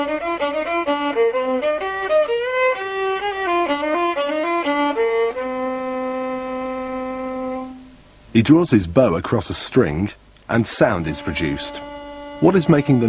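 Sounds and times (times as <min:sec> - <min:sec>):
solo violin melody: 0:00.0 - 0:07.9, 0:10.5 - 0:13.0.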